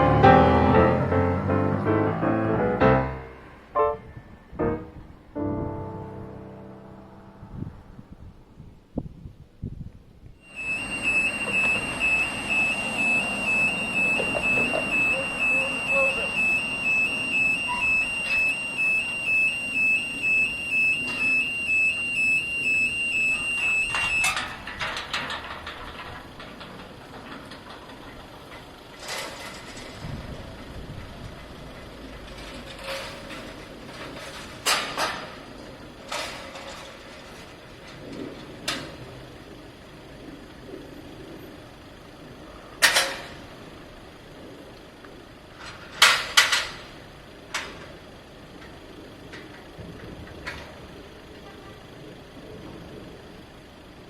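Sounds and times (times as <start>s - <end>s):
music: 0.0s - 7.8s
low rumble: 0.0s - 28.2s.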